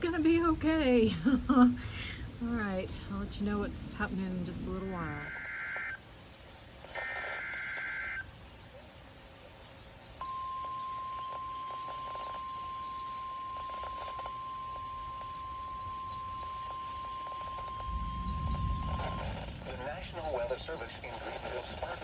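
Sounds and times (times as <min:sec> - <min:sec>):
warbling data tones: 0:04.7 - 0:06.0, 0:06.8 - 0:08.3, 0:10.2 - 0:22.0
steady warning alarm tone: 0:05.0 - 0:06.0, 0:07.0 - 0:08.2, 0:10.2 - 0:21.8
faint bird chirps: 0:05.1 - 0:22.0.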